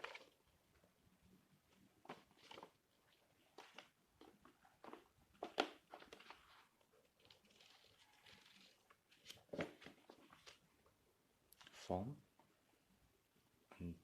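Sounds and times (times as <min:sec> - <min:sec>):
paper rustling: 0:00.0 - 0:00.4, 0:02.0 - 0:10.6.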